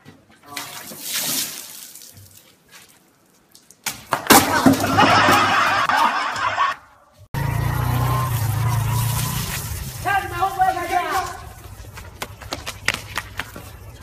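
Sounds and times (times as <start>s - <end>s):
people laughing: 4.5s - 6.9s.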